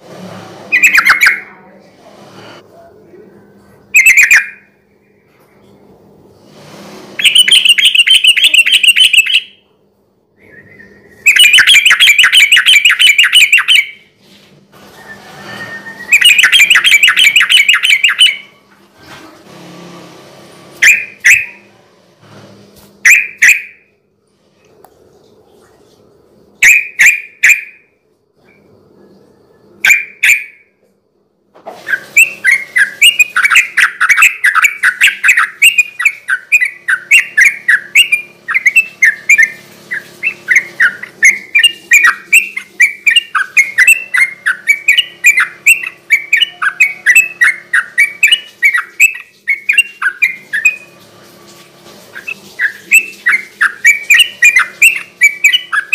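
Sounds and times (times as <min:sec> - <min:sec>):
bulbul singing: 0:00.7 - 0:01.6, 0:03.9 - 0:04.7, 0:07.2 - 0:09.6, 0:10.4 - 0:14.1, 0:15.8 - 0:18.6, 0:20.8 - 0:21.6, 0:31.9 - 0:51.0, 0:52.2 - 0:55.9.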